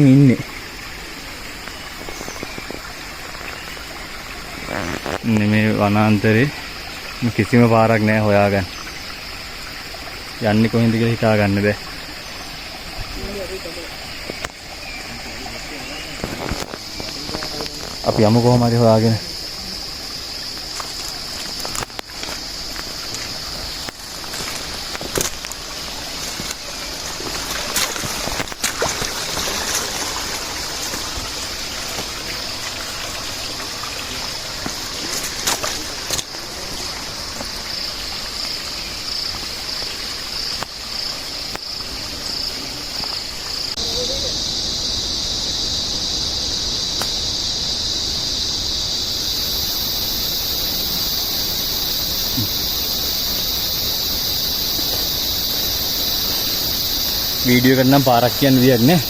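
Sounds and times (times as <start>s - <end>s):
water trickling: 0.0s - 48.3s
higher insect tone: 0.0s - 59.0s
insects droning high-pitched: 0.0s - 59.0s
clicks and rustles: 16.2s - 18.0s, 20.7s - 25.6s, 27.2s - 29.9s, 34.6s - 36.8s.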